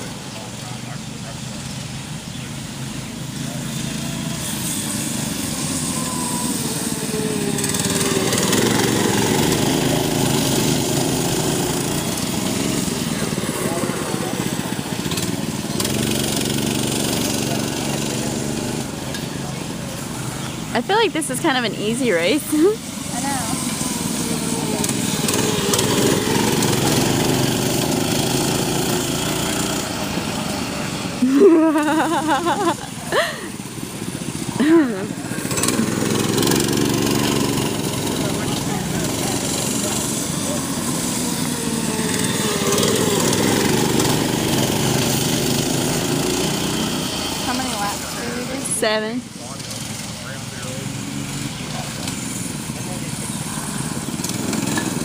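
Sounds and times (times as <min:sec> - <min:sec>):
mini bike engines revving: 0:00.0 - 0:55.0
rising-falling whoop: 0:05.3 - 0:09.2.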